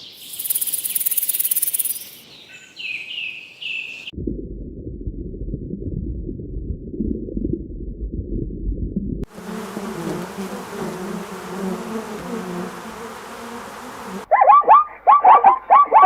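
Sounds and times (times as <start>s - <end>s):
quick high chirps: 0.2s - 2.2s
flying insect buzzing: 0.3s - 2.1s, 9.3s - 14.3s
low rumbling: 4.2s - 9.3s.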